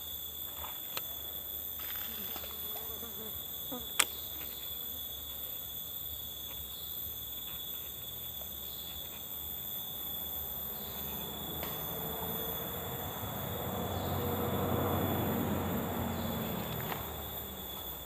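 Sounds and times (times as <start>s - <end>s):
forest insects chorus: 0.0s - 18.0s.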